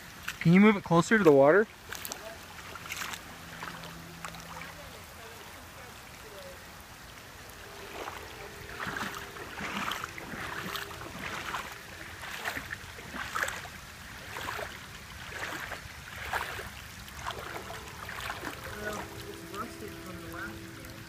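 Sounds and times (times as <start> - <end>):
floodwater rushing: 0.0 - 21.0
heavy rain falling: 3.3 - 15.6, 17.0 - 21.0.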